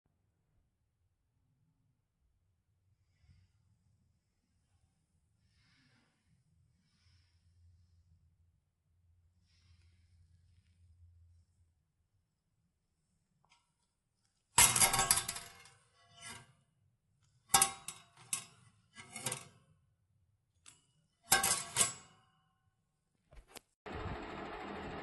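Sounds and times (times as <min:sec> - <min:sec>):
metallic clanks and clinks: 0:14.6 - 0:16.4, 0:17.5 - 0:19.5, 0:20.7 - 0:22.2.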